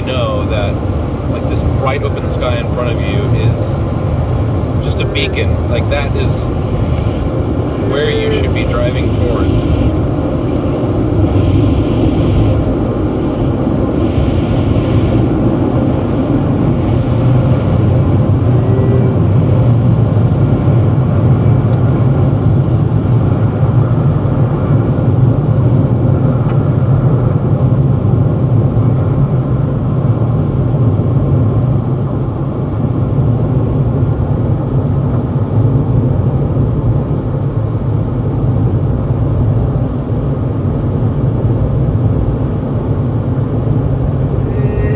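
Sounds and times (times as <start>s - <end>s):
heavy low rumble: 0.0s - 24.7s, 44.1s - 44.9s
car wash machinery rushing: 0.0s - 25.1s.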